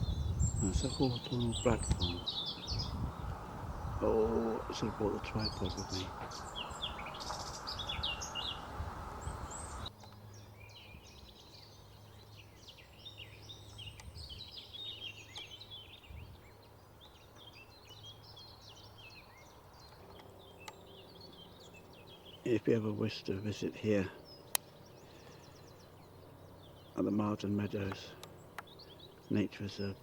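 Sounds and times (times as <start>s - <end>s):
wind rumbling on microphone: 0.0s - 11.7s, 13.0s - 14.9s, 15.7s - 22.4s
small birds chirping: 0.0s - 30.0s.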